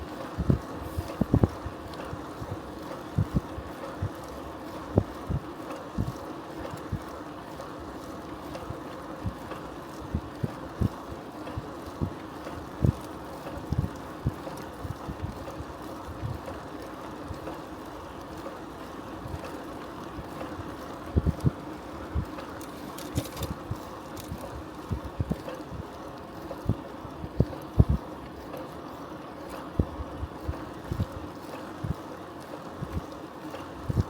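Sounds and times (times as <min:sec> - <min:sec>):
bicycle rolling hum: 0:00.0 - 0:34.0
wind buffeting microphone: 0:00.3 - 0:03.7.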